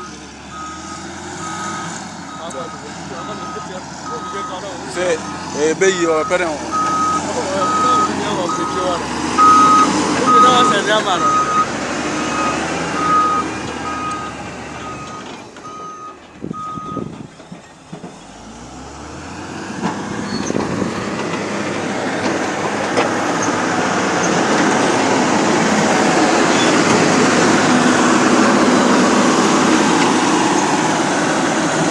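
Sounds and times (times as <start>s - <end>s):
backup alarm beeping: 0.0s - 5.5s, 6.2s - 17.1s
heavy vehicle engine rumbling: 0.0s - 31.9s.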